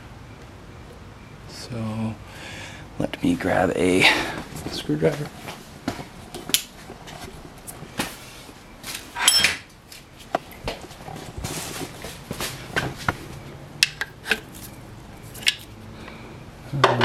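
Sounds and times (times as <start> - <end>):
ringing metallic scrape: 9.2 - 9.6
metal tools clinking on engine parts: 9.2 - 9.7, 13.8 - 15.8.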